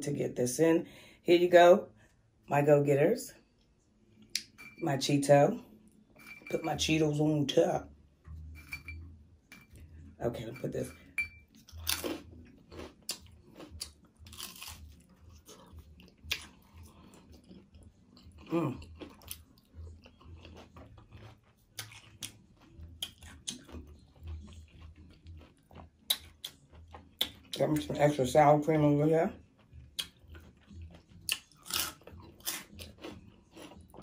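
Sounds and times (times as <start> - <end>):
crunching chips: 11.7 - 27.6, 29.9 - 34.0.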